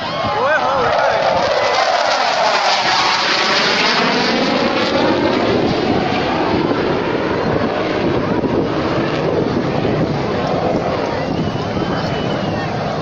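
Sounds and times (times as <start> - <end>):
jet passing overhead: 0.0 - 13.0
wind buffeting microphone: 0.0 - 13.0.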